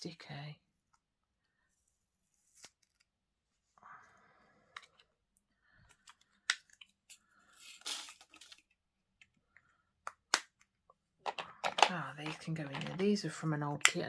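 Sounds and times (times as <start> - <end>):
plastic containers clicking: 11.2 - 13.2.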